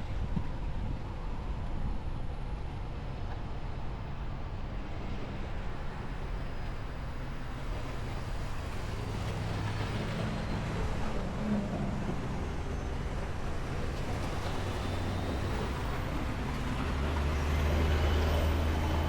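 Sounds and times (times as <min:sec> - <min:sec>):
road noise: 0:03.0 - 0:19.0
truck engine: 0:07.8 - 0:19.0.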